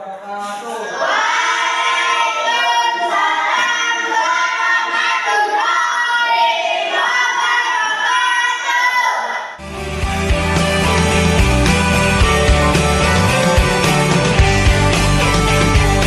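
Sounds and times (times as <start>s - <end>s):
children singing in unison: 0.7s - 9.4s.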